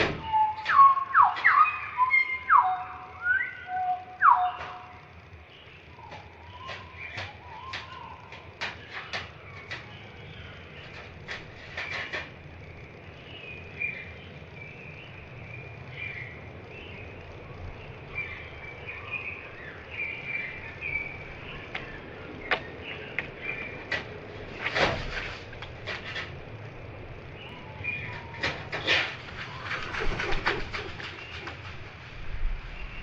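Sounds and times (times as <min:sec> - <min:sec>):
slowed birdsong chirps: 0:00.0 - 0:33.0
sharp taps on a tin roof: 0:06.1 - 0:12.4.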